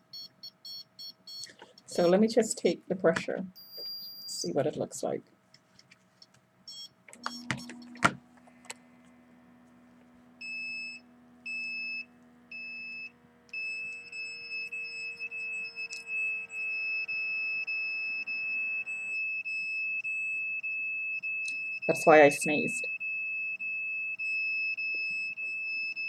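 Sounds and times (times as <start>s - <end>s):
high electronic alarm beeps: 0.1s - 2.1s, 3.6s - 4.3s, 6.7s - 8.2s, 10.4s - 26.0s
cuff pump humming: 6.7s - 19.8s
button clicks: 7.1s - 8.8s.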